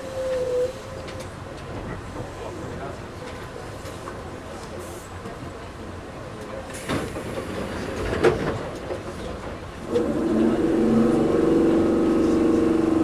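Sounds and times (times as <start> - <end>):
electric train motors humming: 9.8 - 13.0.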